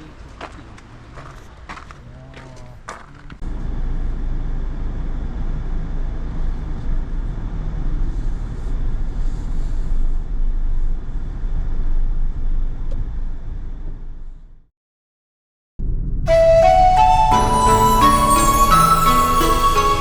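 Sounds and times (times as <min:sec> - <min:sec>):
car engine and road noise: 0:00.0 - 0:14.6, 0:15.8 - 0:16.3.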